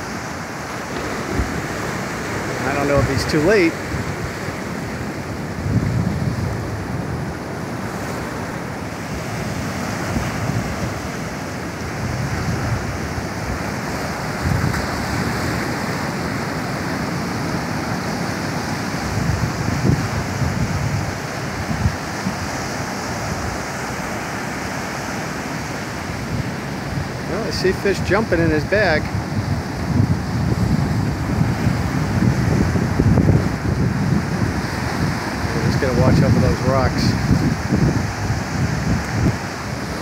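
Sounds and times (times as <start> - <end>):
ocean surf washing onto beach: 0.0 - 40.0
wind buffeting microphone: 0.0 - 40.0.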